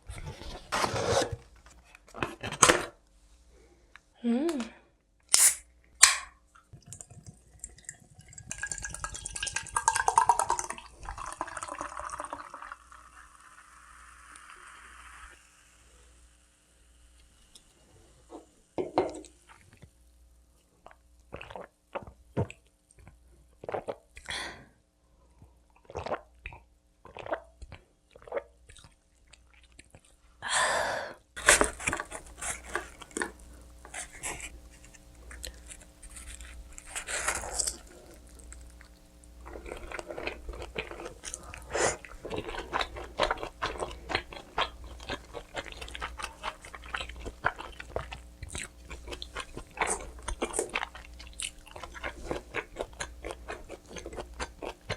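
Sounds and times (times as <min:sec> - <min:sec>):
chewing crunchy crust: 0:31.4 - 0:54.9.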